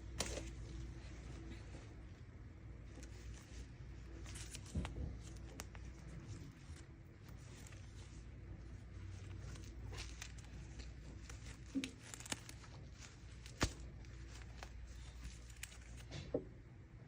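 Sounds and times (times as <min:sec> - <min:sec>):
steady low hum: 0:00.0 - 0:17.0
packaging crinkling and tearing: 0:02.9 - 0:16.2.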